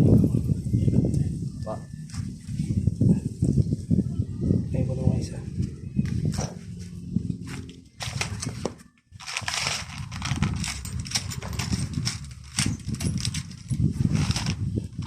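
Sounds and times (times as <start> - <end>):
metal parts knocking and scraping: 8.0 - 15.0.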